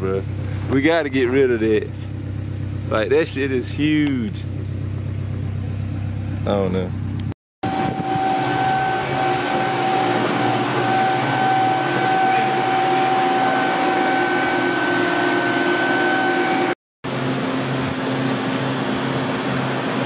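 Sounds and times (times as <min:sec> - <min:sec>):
high whine: 0:00.0 - 0:20.0
mechanical hum: 0:07.6 - 0:20.0.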